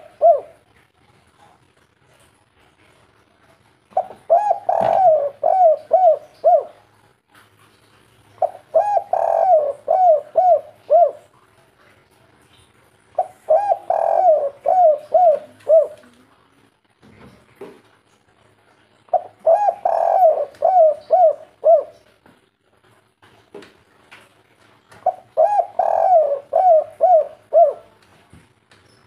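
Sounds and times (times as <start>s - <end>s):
dove cooing: 0.0s - 0.7s, 4.0s - 6.9s, 8.4s - 11.3s, 13.2s - 16.2s, 19.1s - 22.1s, 25.0s - 28.0s.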